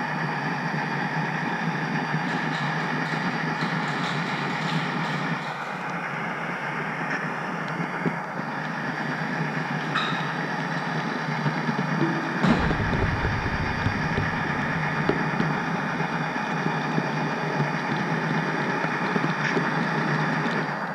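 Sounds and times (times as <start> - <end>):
wheels clicking on rails: 2.1 - 6.5
low rumble: 12.0 - 17.1.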